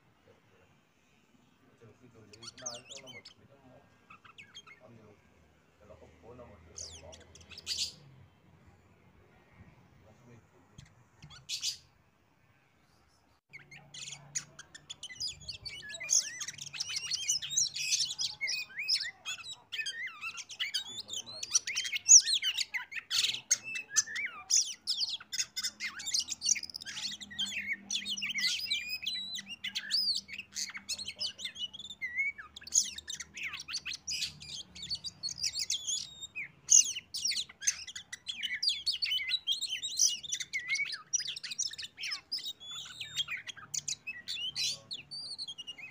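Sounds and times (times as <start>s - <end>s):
bird singing chirps and whistles: 13.5s - 45.9s.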